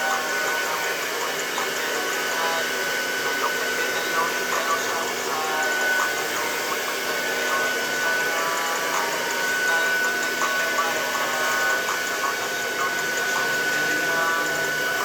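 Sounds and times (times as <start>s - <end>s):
faint voices or music: 0.0s - 15.0s
hair dryer running: 0.0s - 15.0s.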